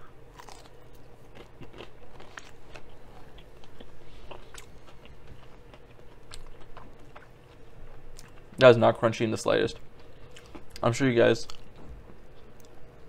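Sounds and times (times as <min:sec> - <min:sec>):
chewing with wet mouth sounds: 0:00.3 - 0:08.6, 0:09.7 - 0:10.8.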